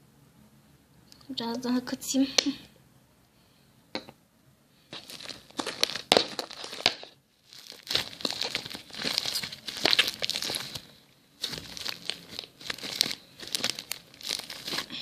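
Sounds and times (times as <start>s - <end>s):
slime squeezed by hand: 4.9s - 15.0s.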